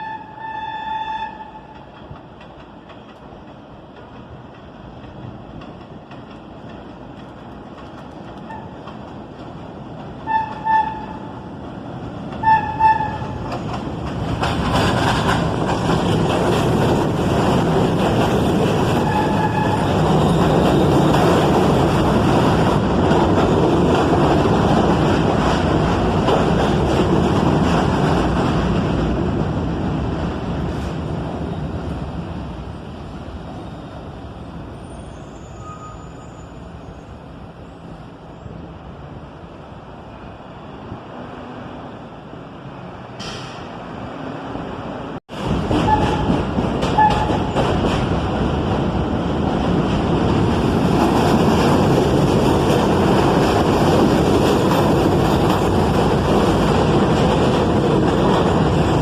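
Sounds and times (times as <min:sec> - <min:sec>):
train horn toots: 0:00.0 - 0:01.8, 0:10.2 - 0:11.3, 0:12.4 - 0:13.4, 0:19.0 - 0:20.0, 0:47.0 - 0:47.5
subway train rumble and rail noise: 0:00.0 - 0:59.0
faint train squeal: 0:33.5 - 0:38.6.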